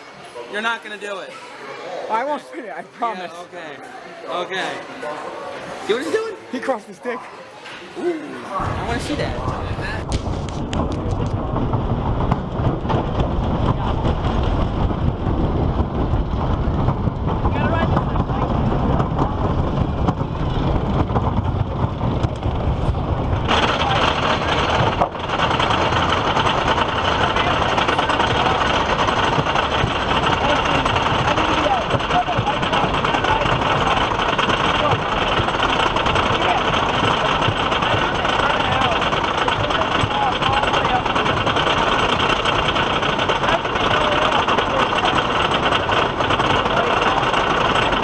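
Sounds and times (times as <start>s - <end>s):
roller coaster clattering on track: 8.6s - 48.0s.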